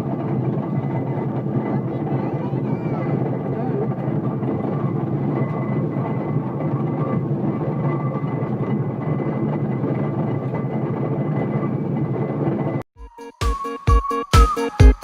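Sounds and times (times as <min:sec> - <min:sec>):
steam engine rumbling: 0:00.0 - 0:12.6.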